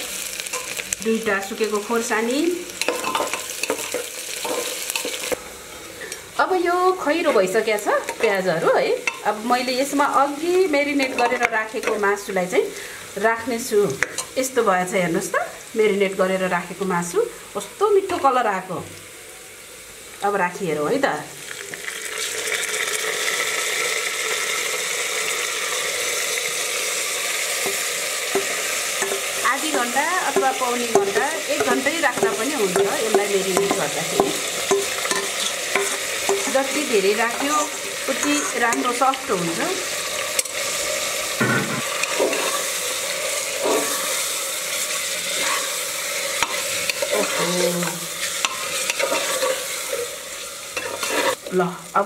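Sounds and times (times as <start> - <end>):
meat sizzling in hot oil: 0.0 - 52.0
spoon scraping a pot: 2.8 - 5.4, 30.3 - 36.6, 37.3 - 39.0, 44.9 - 45.8, 48.2 - 50.0, 50.8 - 51.4.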